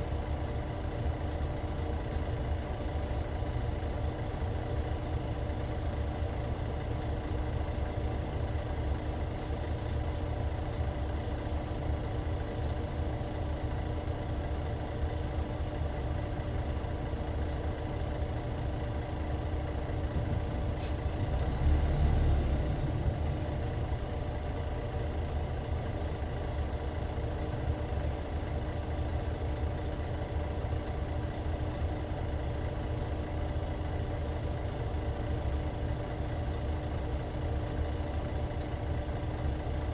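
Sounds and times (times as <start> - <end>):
diesel engine rumbling: 0.0 - 39.9.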